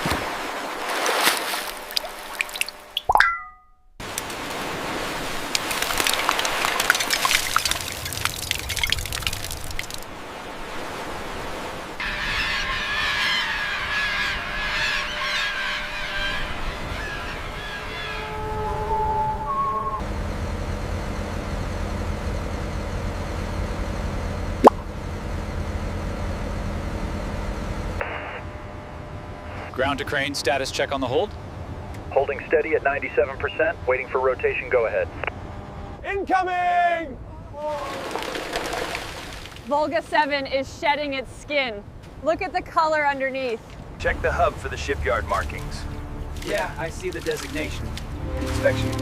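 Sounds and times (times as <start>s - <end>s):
water running and splashing: 0.0s - 3.2s, 4.0s - 12.0s, 37.8s - 39.8s, 45.3s - 49.0s
water dripping: 1.3s - 4.4s, 5.4s - 10.1s
heavy machinery engine rumble: 12.0s - 36.0s, 37.2s - 49.0s.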